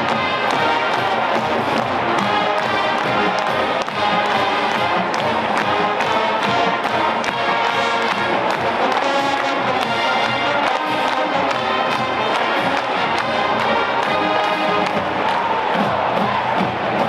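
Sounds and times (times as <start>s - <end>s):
brass instruments playing: 0.0s - 17.0s
drumline beat: 0.0s - 17.0s.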